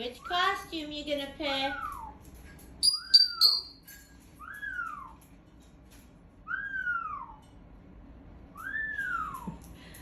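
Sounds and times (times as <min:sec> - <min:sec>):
parrot whistling: 0:02.8 - 0:03.8, 0:06.4 - 0:07.4.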